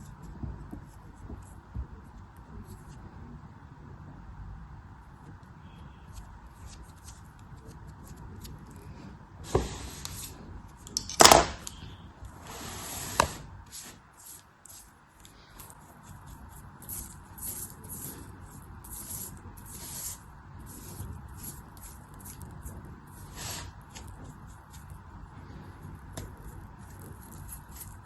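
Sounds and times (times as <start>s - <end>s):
sharp click: 10.9s - 11.8s
blade cutting crumbly material: 13.7s - 25.1s, 26.1s - 28.0s.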